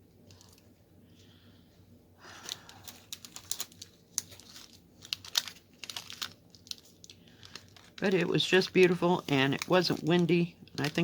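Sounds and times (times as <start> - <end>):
plastic film crinkling: 0.2 - 0.7, 2.2 - 11.0.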